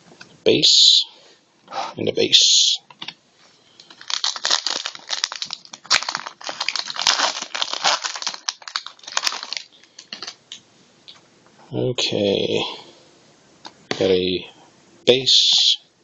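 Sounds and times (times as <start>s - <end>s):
card pack wrapper crinkling: 3.8s - 10.6s.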